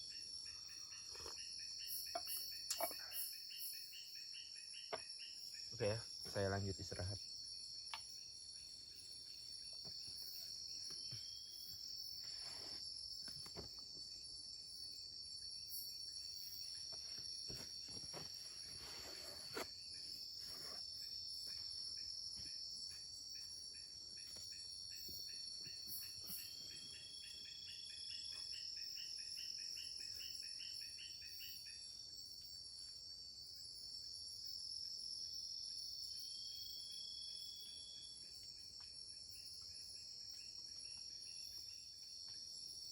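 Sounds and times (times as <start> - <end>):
insects droning: 0.0 - 42.9
soft rustles: 17.1 - 19.7.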